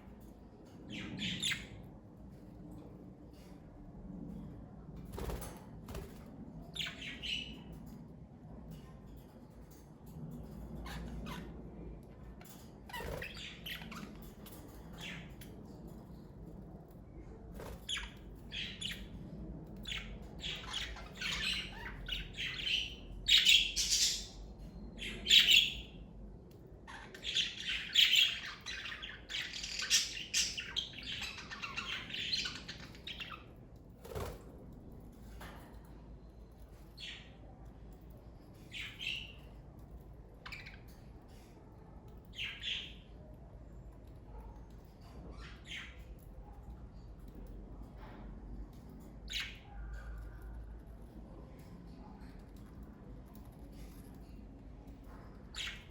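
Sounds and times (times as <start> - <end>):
budgerigars chirping and squawking: 19.8 - 24.4, 25.0 - 25.9, 26.9 - 33.5, 55.5 - 55.9.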